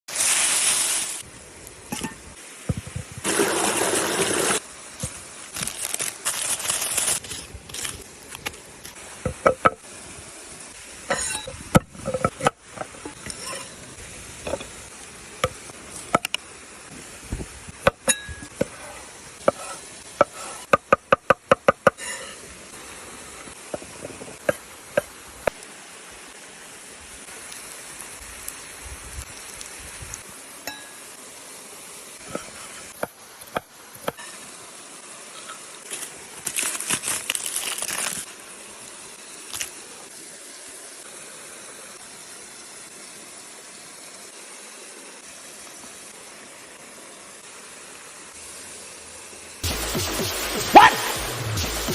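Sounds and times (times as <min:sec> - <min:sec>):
rushing hiss: 0:00.1 - 0:17.9, 0:31.4 - 0:51.9.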